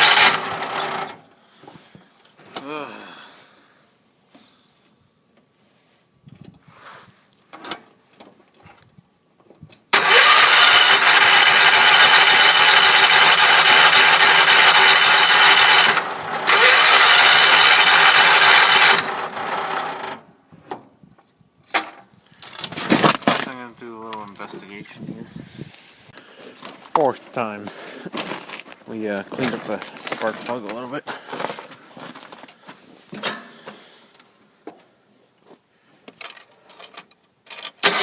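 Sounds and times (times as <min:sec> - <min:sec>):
engine cranked by starter: 0:00.0 - 0:01.2, 0:09.9 - 0:20.3, 0:37.6 - 0:38.0.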